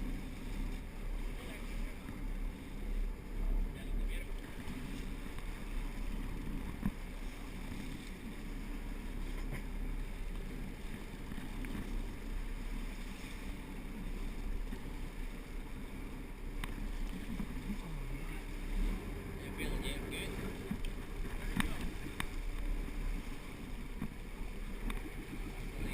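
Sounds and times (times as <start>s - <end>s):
boat engine rumbling: 0.0s - 25.9s
faint clicks: 16.5s - 17.5s, 20.7s - 22.7s, 24.8s - 25.1s.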